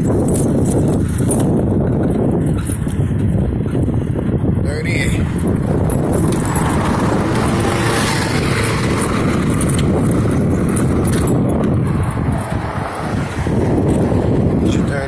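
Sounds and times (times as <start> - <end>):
vehicle engine running: 5.3 - 14.4.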